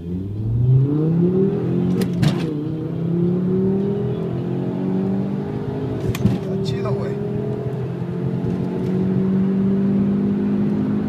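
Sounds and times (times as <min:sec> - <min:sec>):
car engine accelerating: 0:00.0 - 0:11.0
gear change clunk: 0:01.9 - 0:02.6, 0:05.9 - 0:06.6.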